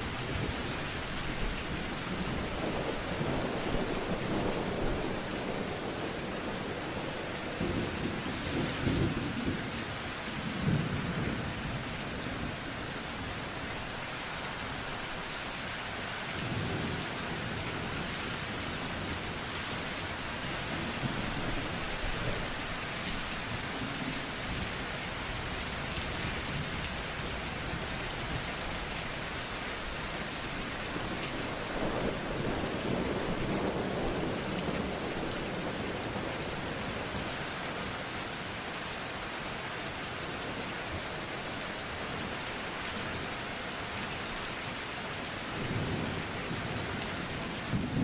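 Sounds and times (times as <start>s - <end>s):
steady rain: 0.0s - 48.0s.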